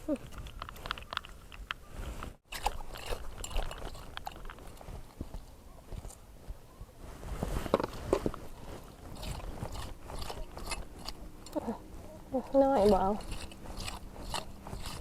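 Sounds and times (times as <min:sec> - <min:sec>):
hand tool raking sand and shells: 0:02.4 - 0:05.4, 0:12.6 - 0:15.0.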